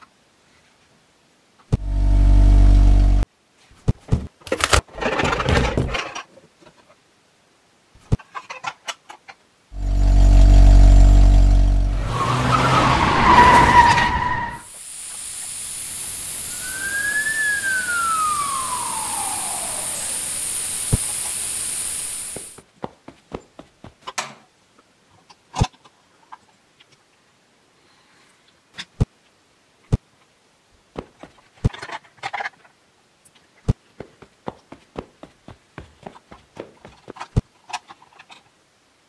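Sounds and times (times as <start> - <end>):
low horn-like tone: 1.8 - 3.2, 9.8 - 12.5
harsh screech: 9.8 - 14.7, 16.4 - 21.1
hiss with whistle: 12.0 - 22.6.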